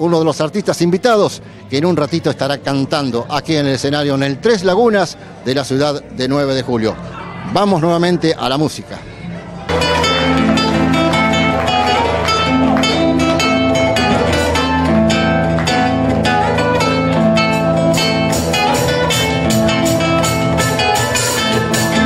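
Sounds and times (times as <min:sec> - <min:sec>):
acoustic guitar folk music: 0:09.3 - 0:22.0.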